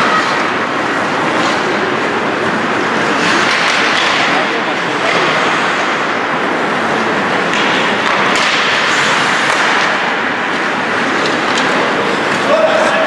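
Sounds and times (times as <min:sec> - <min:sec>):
arena noise: 0:00.0 - 0:13.0
sticks clicking on puck: 0:03.2 - 0:04.3, 0:07.5 - 0:12.9
skates hissing on ice: 0:08.5 - 0:13.0.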